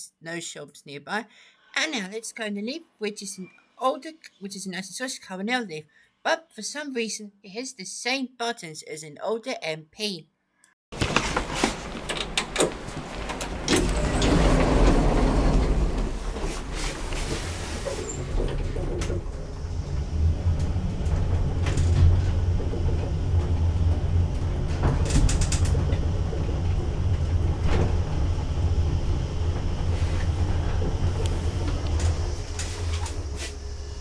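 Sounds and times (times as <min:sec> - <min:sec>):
lift car humming: 0:11.4 - 0:34.0
clicks and creaks: 0:12.0 - 0:28.2.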